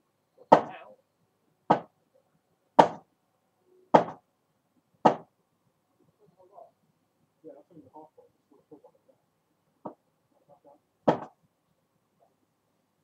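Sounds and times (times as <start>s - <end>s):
sharp knocks: 0.5s - 0.8s, 1.7s - 1.9s, 2.8s - 3.1s, 3.9s - 4.2s, 5.0s - 5.3s, 11.0s - 11.4s.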